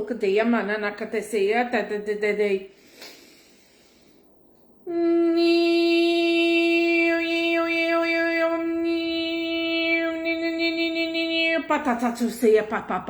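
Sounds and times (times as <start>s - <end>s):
woman singing long note: 4.9s - 11.9s.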